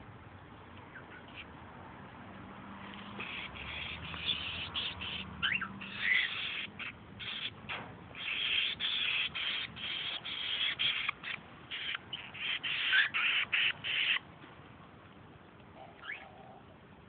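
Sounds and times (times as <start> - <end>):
young bird harsh raspy calls: 3.0 - 14.3.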